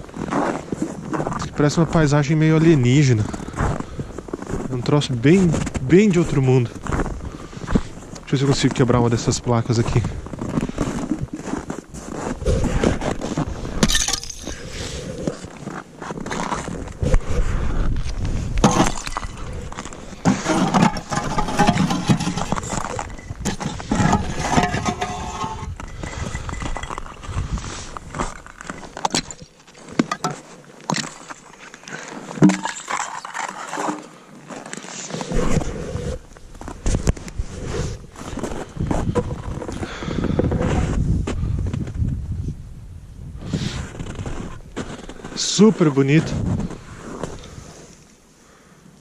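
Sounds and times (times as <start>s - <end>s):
ice pieces clinking: 13.8s - 14.7s, 18.6s - 34.2s
ice cracking and snapping: 17.9s - 25.0s, 25.7s - 35.2s.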